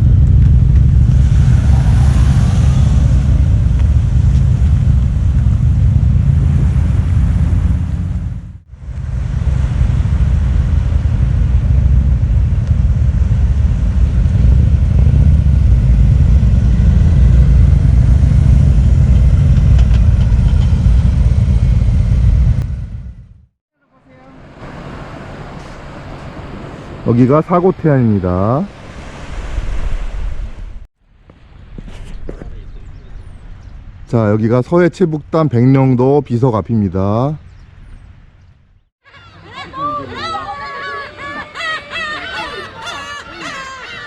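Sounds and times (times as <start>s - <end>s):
motorcycle engine rumbling: 0.0s - 23.6s.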